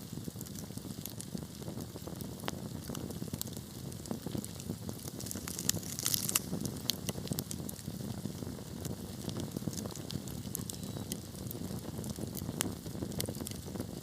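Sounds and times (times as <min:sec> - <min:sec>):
low rumble of flames: 0:00.0 - 0:14.0
wood fire crackling and popping: 0:00.0 - 0:14.0.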